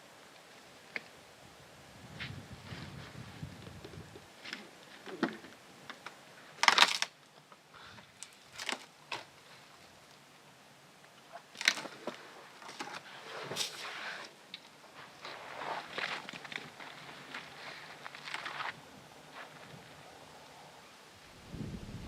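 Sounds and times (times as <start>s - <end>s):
dry vegetation crunching: 2.2s - 7.2s, 7.8s - 9.7s, 11.3s - 20.0s.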